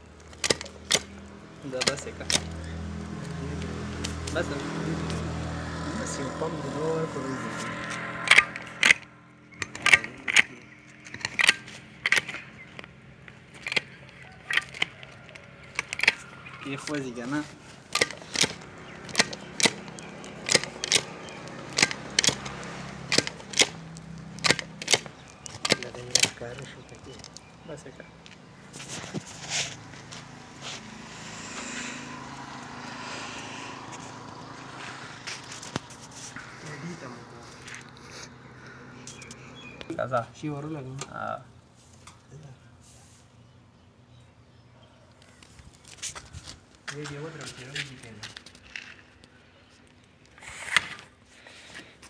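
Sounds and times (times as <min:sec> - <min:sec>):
grease gun metallic clicks: 0:00.0 - 0:05.9, 0:07.6 - 0:29.4
diesel engine idling: 0:00.0 - 0:41.7.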